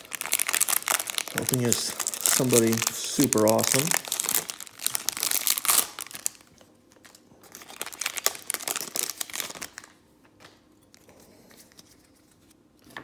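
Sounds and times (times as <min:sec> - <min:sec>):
card packaging crinkling: 0:00.0 - 0:10.6.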